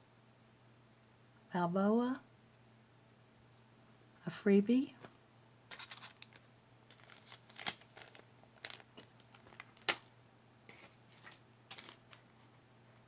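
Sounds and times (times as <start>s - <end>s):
soft crinkling: 4.9s - 13.0s.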